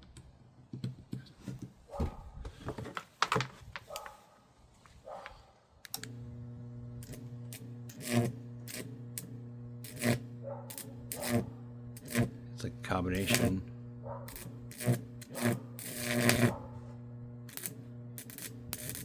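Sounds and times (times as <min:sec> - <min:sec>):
clatter of parts being handled: 0:02.6 - 0:04.2
transformer humming: 0:05.9 - 0:19.0
sharp electrical crackle: 0:09.8 - 0:12.4, 0:14.3 - 0:16.7, 0:17.5 - 0:19.0.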